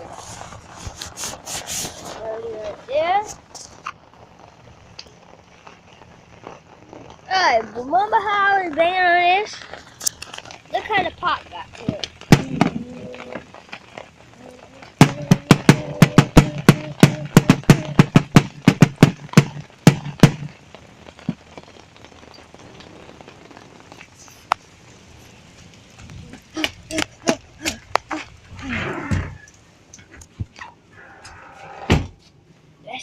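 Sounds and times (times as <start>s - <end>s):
person grunting: 14.4s - 18.0s, 26.3s - 29.2s
rapid banging knocks: 15.0s - 20.6s.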